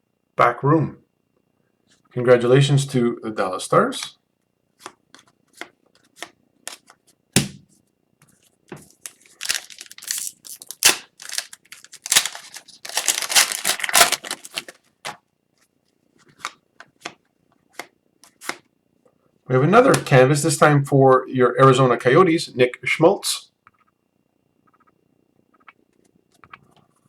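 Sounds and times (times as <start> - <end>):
cards clicking and rustling: 4.8 - 7.0, 8.8 - 14.8
crinkly wrapper rustling: 8.8 - 14.9.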